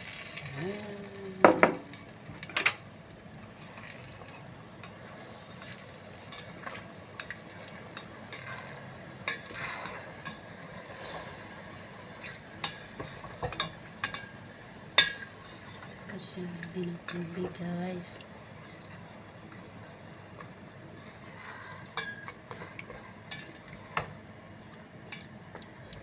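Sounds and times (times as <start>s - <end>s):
spoon stirring in a cooking pot: 3.6s - 11.6s, 12.2s - 14.4s, 16.6s - 17.6s, 21.0s - 24.2s.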